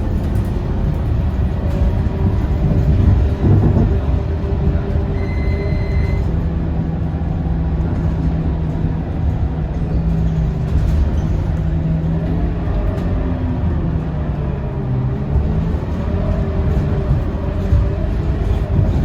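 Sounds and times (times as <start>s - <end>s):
bus diesel engine running: 0.0s - 19.0s
road and body rumble: 0.0s - 19.0s
faint high beep: 5.2s - 6.2s.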